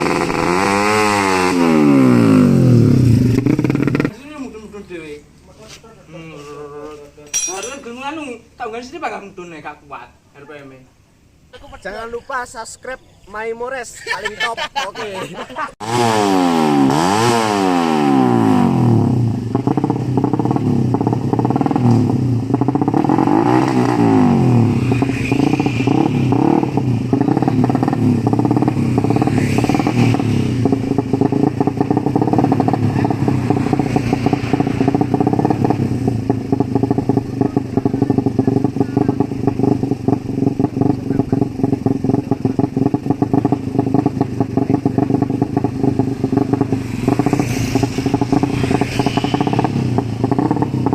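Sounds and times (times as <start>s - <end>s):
motorcycle engine revving: 0.0s - 4.6s, 15.8s - 50.9s.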